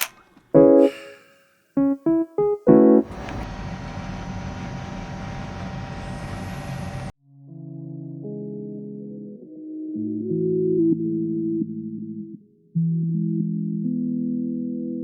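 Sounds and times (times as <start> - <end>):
piano music: 0.6 - 1.2, 1.8 - 3.4.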